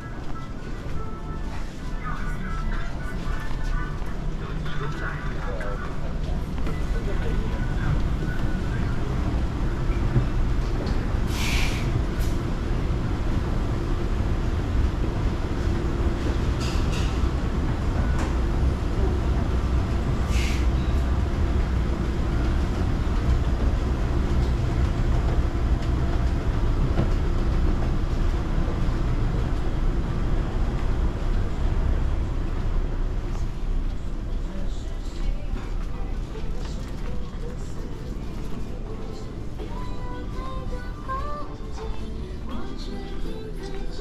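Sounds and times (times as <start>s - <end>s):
city street traffic rumble: 0.0s - 44.0s
short hisses: 11.3s - 11.9s.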